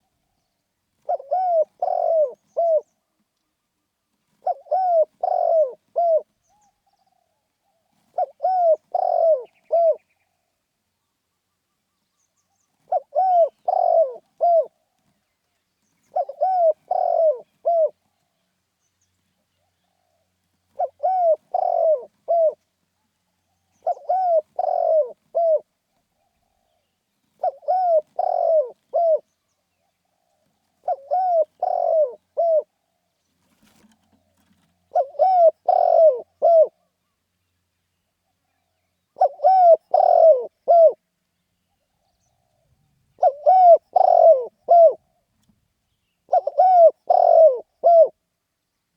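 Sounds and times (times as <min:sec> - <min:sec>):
dove cooing: 0:01.0 - 0:03.2, 0:04.3 - 0:10.2, 0:12.8 - 0:15.0, 0:16.0 - 0:18.2, 0:19.6 - 0:22.6, 0:23.4 - 0:32.8, 0:33.4 - 0:37.1, 0:38.4 - 0:41.0, 0:42.2 - 0:45.5, 0:46.2 - 0:48.2.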